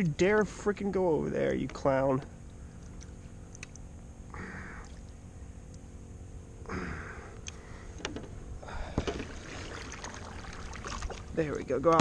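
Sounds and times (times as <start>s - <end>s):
low steady rumble: 0.0s - 12.0s
water splashing around kayak: 8.7s - 11.8s.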